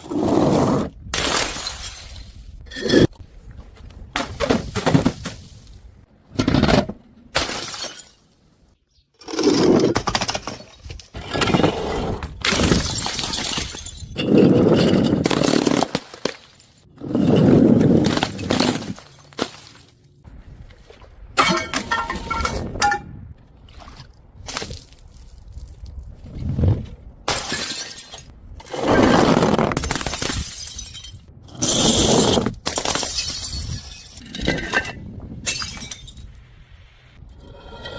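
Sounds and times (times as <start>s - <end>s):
glass bottles shattering: 1.2s - 3.1s, 7.4s - 8.3s, 12.5s - 16.8s, 21.4s - 23.0s, 27.3s - 28.3s, 29.8s - 31.8s, 32.6s - 36.3s
glass shards clinking: 21.4s - 23.0s.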